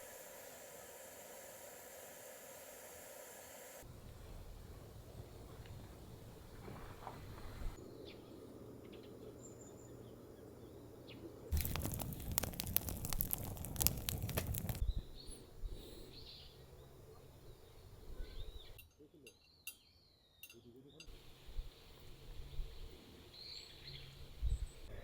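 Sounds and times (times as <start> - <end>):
small birds chirping: 7.8 - 25.0
loud dense crackling: 11.5 - 14.8.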